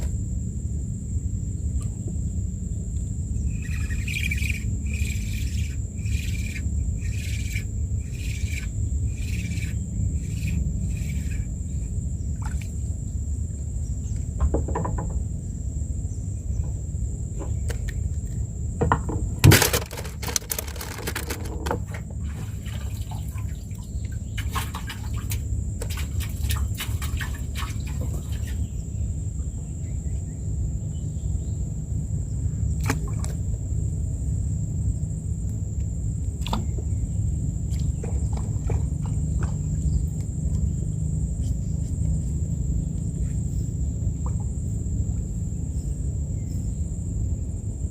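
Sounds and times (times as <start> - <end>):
high insect drone: 0.0 - 47.9
bird chirping: 3.4 - 12.3
clicking and rustling: 19.4 - 22.0.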